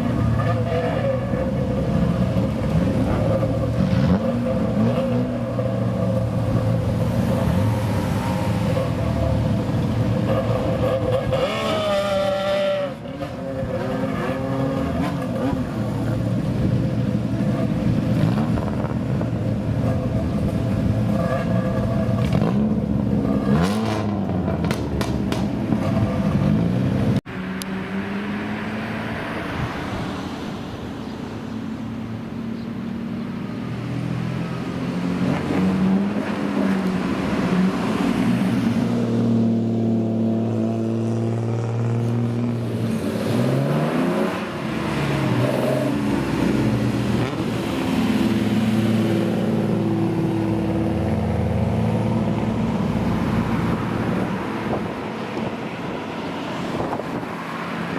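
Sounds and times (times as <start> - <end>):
car engines revving: 0.0 - 57.9.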